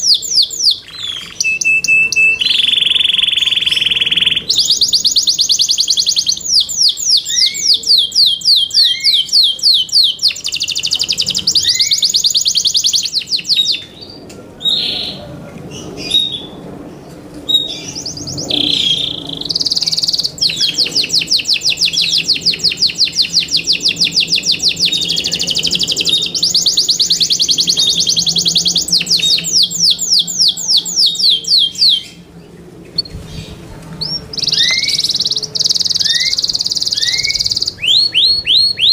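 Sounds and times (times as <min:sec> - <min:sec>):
canary trilling: 0:00.0 - 0:14.1, 0:17.5 - 0:32.2, 0:33.0 - 0:38.9.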